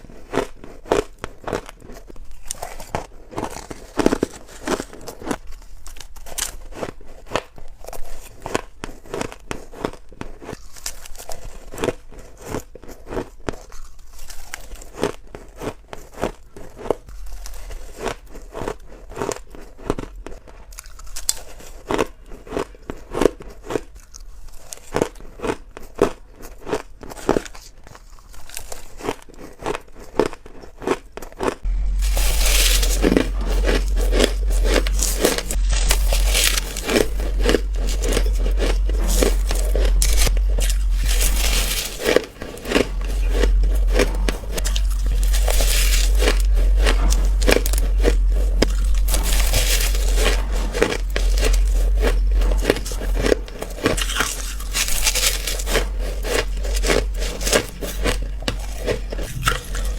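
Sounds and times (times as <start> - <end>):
chewing ice crunching: 0.0 - 59.9
low hum: 31.6 - 59.9.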